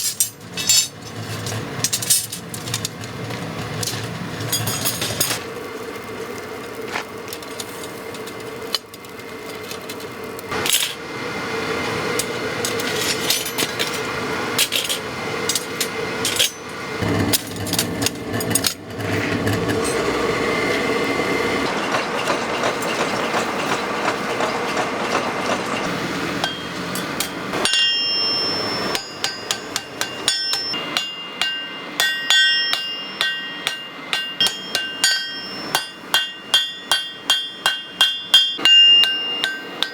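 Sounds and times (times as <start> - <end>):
rushing machine noise: 10.5 - 39.9
hammer striking steel on anvil: 26.3 - 39.9.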